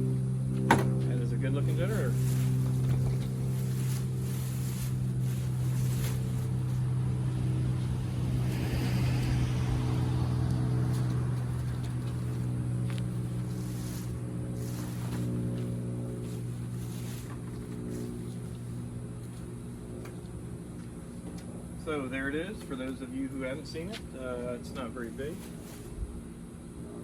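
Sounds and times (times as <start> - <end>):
low engine-like hum: 0.0 - 27.0
rustle: 1.7 - 6.9, 10.5 - 18.9, 25.1 - 26.3.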